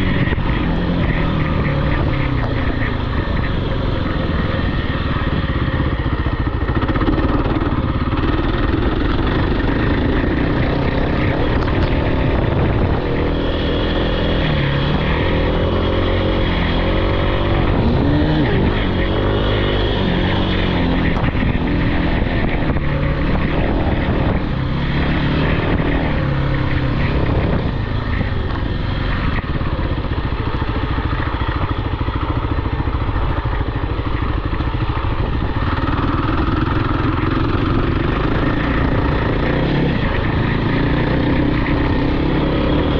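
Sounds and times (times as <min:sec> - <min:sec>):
off-road vehicle engine revving: 0:00.0 - 0:31.6, 0:35.1 - 0:42.9.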